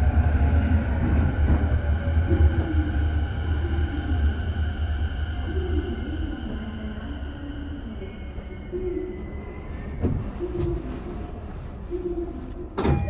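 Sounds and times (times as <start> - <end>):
train wheels rumbling on rail: 0.0 - 7.4, 9.6 - 11.8.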